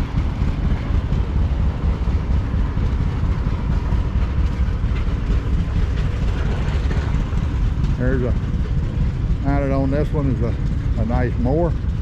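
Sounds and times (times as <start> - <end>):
old tractor engine running: 0.0 - 12.0.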